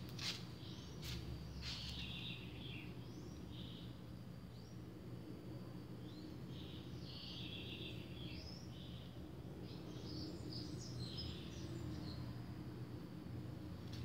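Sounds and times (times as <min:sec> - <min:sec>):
low steady hum: 0:00.0 - 0:14.0
birds chirping: 0:00.2 - 0:04.9, 0:06.0 - 0:12.3.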